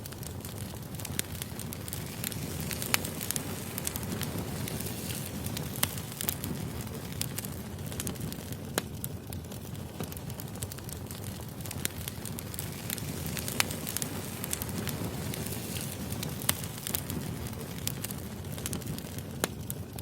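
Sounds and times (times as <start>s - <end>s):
burning logs crackling and popping: 0.0s - 20.0s
flames rumbling: 0.0s - 20.0s.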